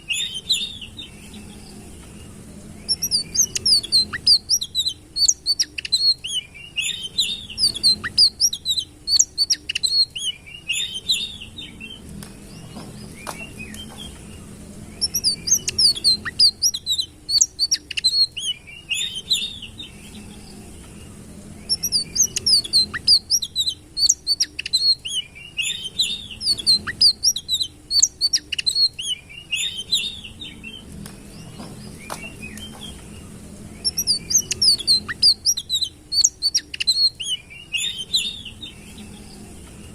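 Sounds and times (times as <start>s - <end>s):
songbird twittering: 0.0s - 39.9s.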